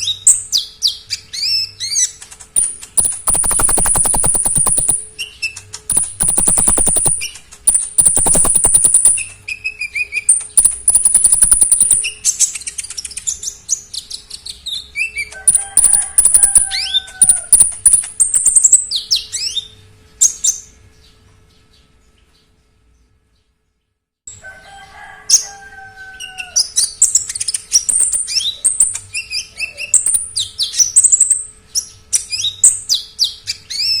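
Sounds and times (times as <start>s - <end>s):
songbird singing trills and chirps: 0.0s - 9.4s, 10.3s - 14.2s, 27.0s - 34.0s.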